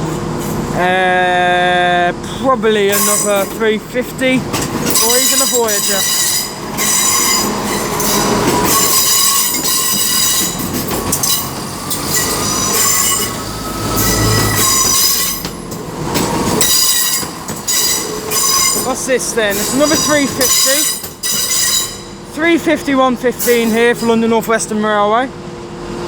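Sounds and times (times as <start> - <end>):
train wheels squealing on rails: 2.9 - 3.4, 4.8 - 22.3.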